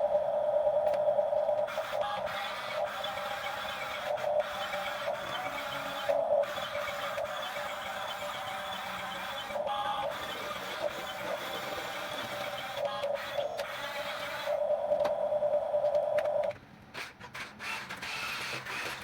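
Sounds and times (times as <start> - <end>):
toy electric motors whirring: 1.7 - 14.6, 17.0 - 19.0.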